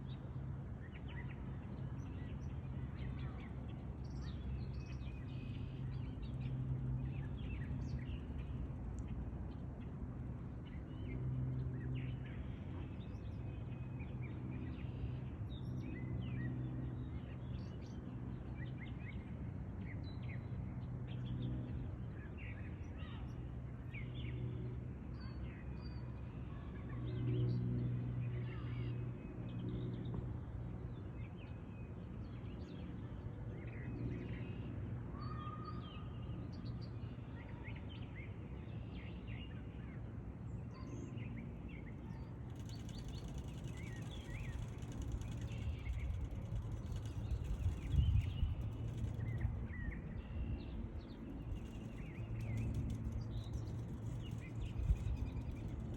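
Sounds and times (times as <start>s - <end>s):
steady low hum: 38.2s - 55.9s.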